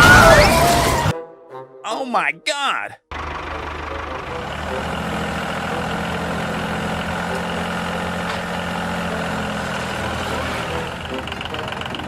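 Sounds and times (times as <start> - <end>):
vehicle engine idling: 3.1 - 12.0.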